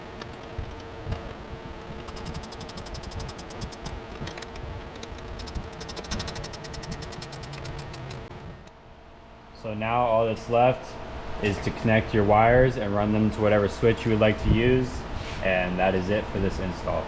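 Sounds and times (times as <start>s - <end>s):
ratchet wrench clicking: 2.1s - 8.3s.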